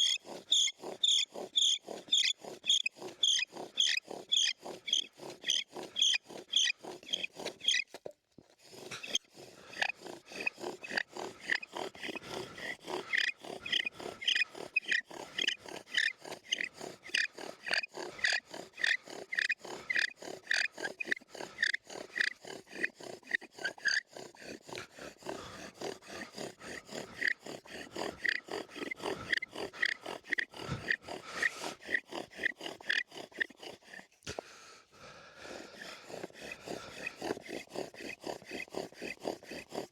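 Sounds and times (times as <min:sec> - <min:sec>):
wooden spindle grinding and squeaking: 0:00.0 - 0:34.2, 0:35.6 - 0:39.9.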